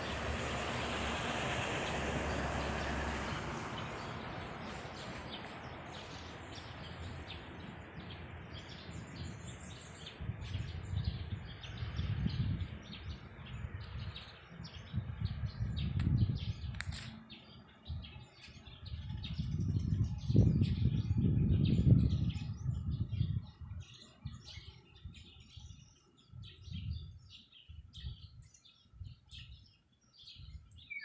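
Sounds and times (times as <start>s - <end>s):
broad rushing noise: 0.0s - 7.6s.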